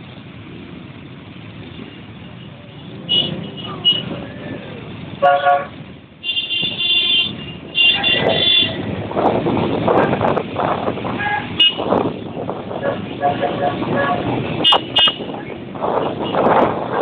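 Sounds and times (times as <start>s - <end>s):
motorbike engines: 0.0s - 17.0s
road noise: 0.0s - 17.0s
vehicle horns honking: 2.3s - 4.4s, 5.2s - 8.9s, 11.1s - 16.6s.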